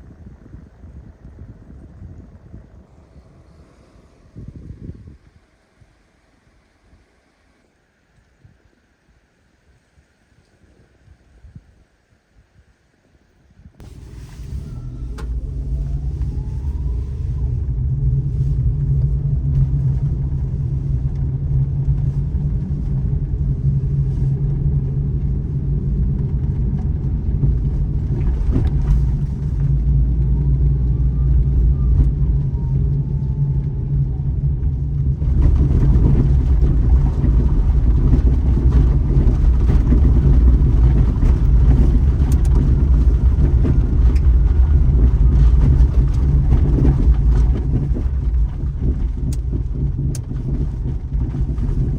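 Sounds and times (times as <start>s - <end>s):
car engine rumbling: 0.0s - 10.3s, 13.8s - 51.9s
road noise: 0.0s - 10.6s, 13.8s - 51.9s.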